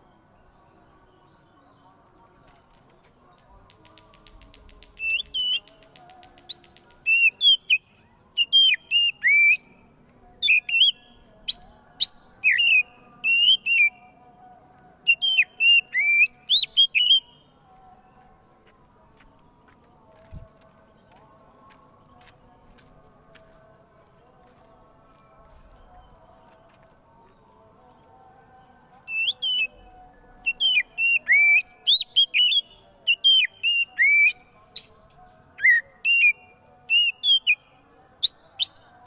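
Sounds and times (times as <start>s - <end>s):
bird singing whistled notes: 3.8s - 14.2s, 15.0s - 17.6s, 28.6s - 39.0s.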